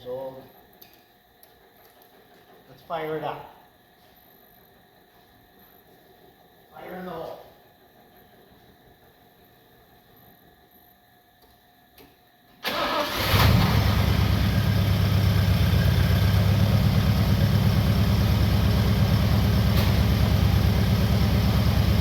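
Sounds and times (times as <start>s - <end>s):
starter motor cranking: 12.6s - 14.3s
car engine idling: 12.7s - 22.0s.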